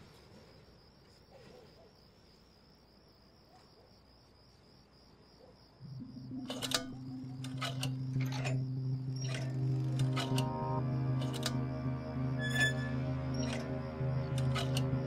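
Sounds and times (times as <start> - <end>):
faint cricket-like chirring: 0.0 - 15.0
loud low drone: 6.0 - 15.0.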